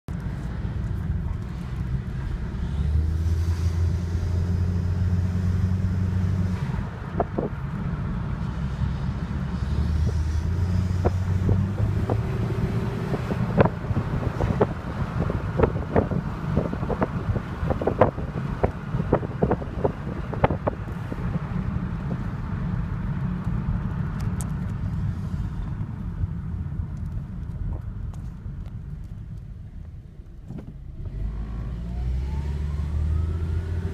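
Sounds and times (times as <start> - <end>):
car engine low rumble: 0.0 - 33.9.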